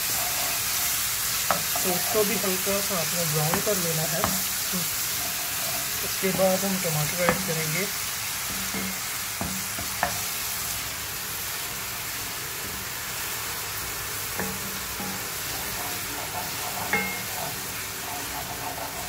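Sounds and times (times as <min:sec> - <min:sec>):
onions sizzling in hot oil: 0:00.0 - 0:19.0
wooden spoon knocking pot: 0:03.4 - 0:04.5, 0:07.0 - 0:07.7, 0:16.9 - 0:17.5.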